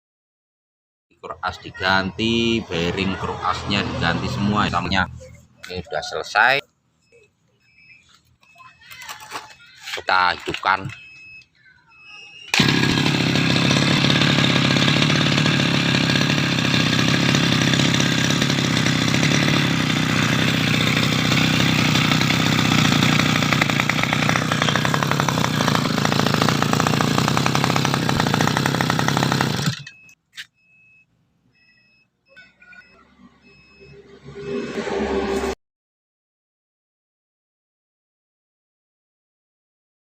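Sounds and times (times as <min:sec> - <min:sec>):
brush cutter engine running: 0:12.5 - 0:30.1.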